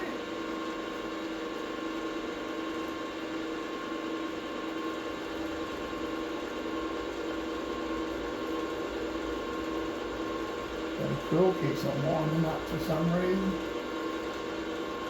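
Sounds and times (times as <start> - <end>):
electric motor humming and whining: 0.0 - 0.9, 7.9 - 15.0.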